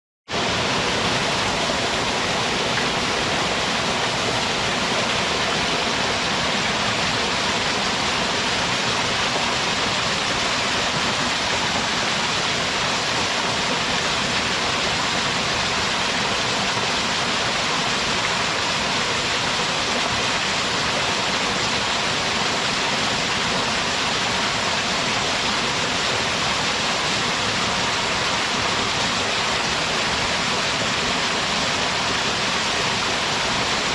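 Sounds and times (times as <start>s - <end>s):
rush of falling water: 0.3s - 33.9s.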